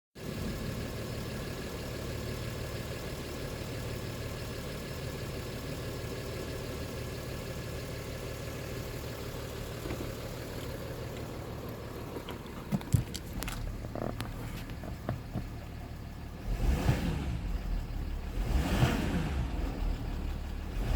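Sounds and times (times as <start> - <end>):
diesel engine idling: 0.2 - 20.9.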